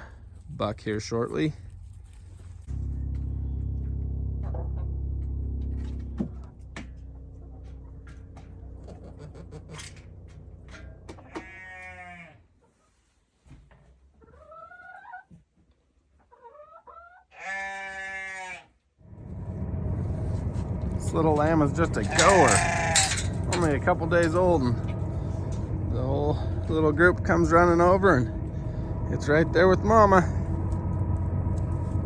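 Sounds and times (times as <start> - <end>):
low steady rumble: 0.0 - 12.1, 19.0 - 32.0
sheep bleating: 11.2 - 12.4, 17.3 - 18.8, 22.0 - 23.7.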